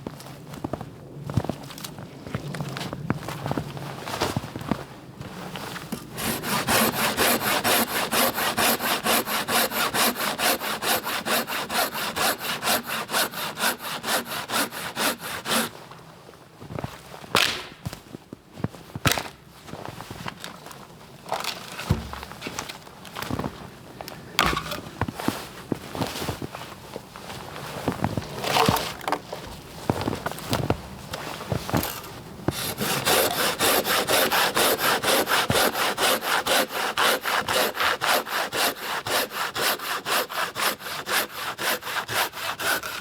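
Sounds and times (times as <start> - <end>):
hand saw cutting wood: 6.0 - 15.8, 28.4 - 29.2, 31.7 - 43.0
knocks of wood being handled: 21.3 - 22.8, 24.4 - 25.2, 28.2 - 29.4.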